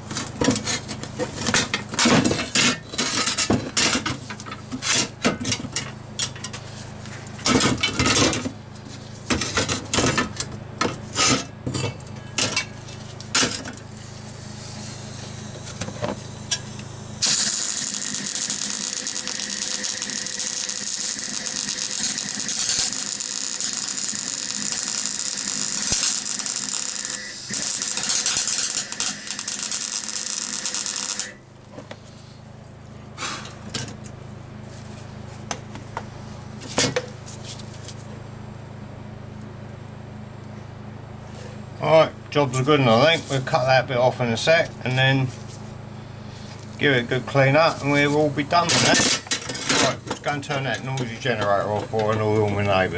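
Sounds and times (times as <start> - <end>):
welder hissing: 13.9 - 31.4, 46.4 - 52.9.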